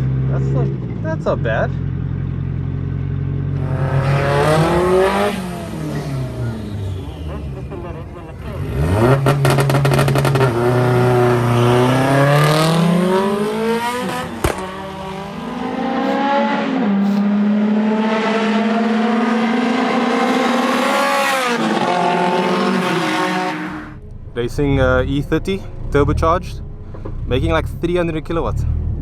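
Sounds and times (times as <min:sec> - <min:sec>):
car engine accelerating hard: 0:00.0 - 0:29.0.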